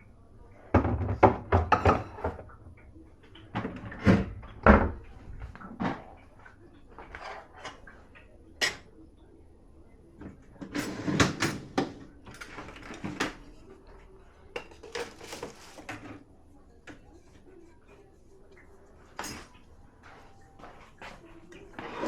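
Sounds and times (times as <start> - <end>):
dishes and cutlery clinking: 0.8 - 2.6, 14.5 - 16.2.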